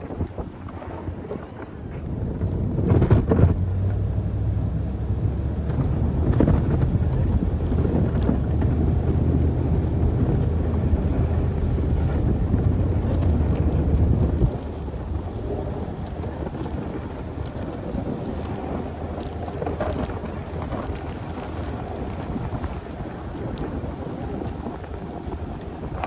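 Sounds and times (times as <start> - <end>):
snow plow rumble: 0.0 - 26.0
truck engine under load: 0.0 - 26.0.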